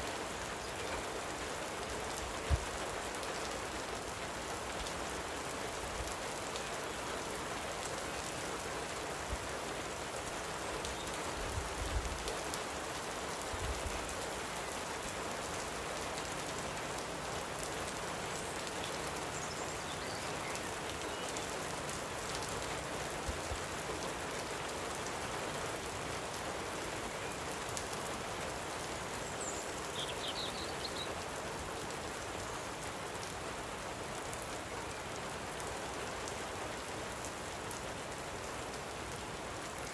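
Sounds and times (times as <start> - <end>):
light rain falling: 0.0 - 39.9
bird chirping: 29.3 - 31.2.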